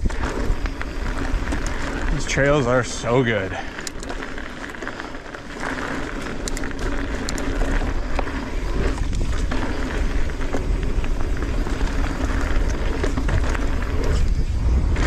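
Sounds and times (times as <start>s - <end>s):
bike clicks and rattles: 0.0s - 15.0s
bike tyres rolling on dirt: 0.0s - 15.0s
wind on microphone: 5.5s - 15.0s.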